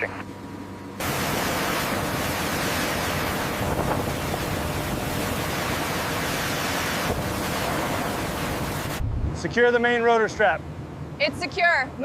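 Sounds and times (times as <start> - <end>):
water rushing: 1.0 - 9.5
wind rushing: 6.9 - 9.6.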